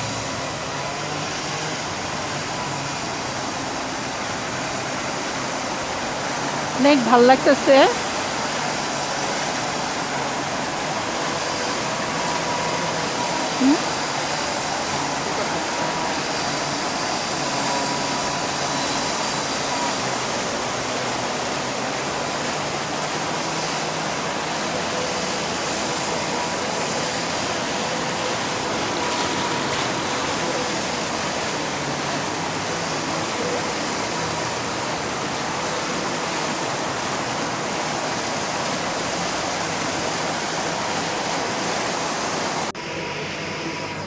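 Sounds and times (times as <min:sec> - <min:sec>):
rushing water noise: 0:00.0 - 0:42.8.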